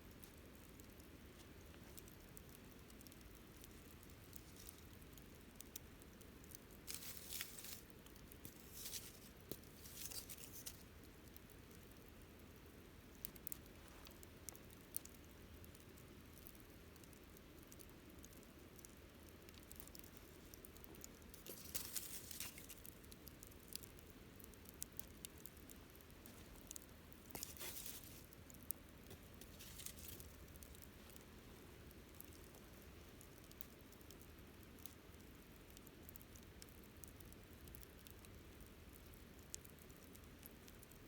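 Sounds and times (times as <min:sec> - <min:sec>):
campfire crackling and popping: 0:00.0 - 0:41.0.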